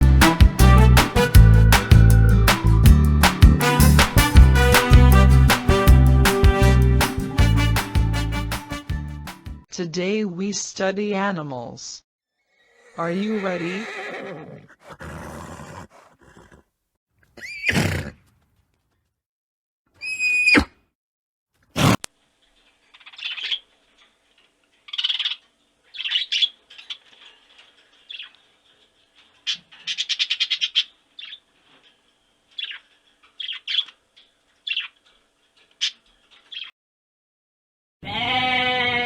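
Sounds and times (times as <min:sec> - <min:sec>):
sharp crack: 0:01.0 - 0:06.4
birds chirping: 0:22.9 - 0:23.6, 0:24.9 - 0:27.4, 0:32.5 - 0:35.0.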